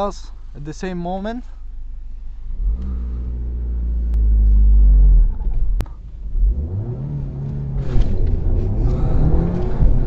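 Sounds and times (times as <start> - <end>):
car engine revving and accelerating: 2.5 - 10.0.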